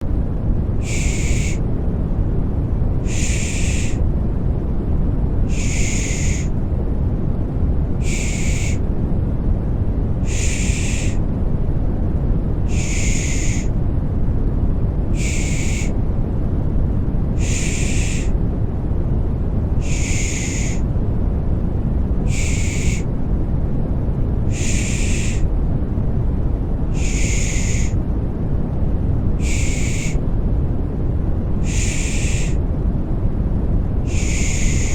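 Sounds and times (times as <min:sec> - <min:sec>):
deep rushing white noise: 0:00.0 - 0:34.9
person shushing: 0:00.8 - 0:01.6, 0:03.1 - 0:04.0, 0:10.3 - 0:11.2, 0:12.7 - 0:13.7, 0:15.2 - 0:15.9, 0:17.4 - 0:18.3, 0:34.1 - 0:34.9.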